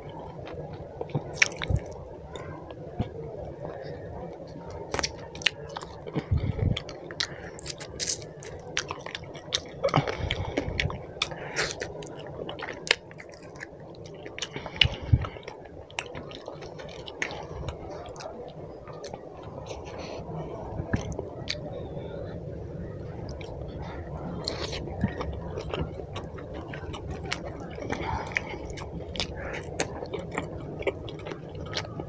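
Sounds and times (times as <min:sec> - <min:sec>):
close chewing: 0:00.4 - 0:03.1, 0:04.6 - 0:20.0, 0:23.1 - 0:32.0.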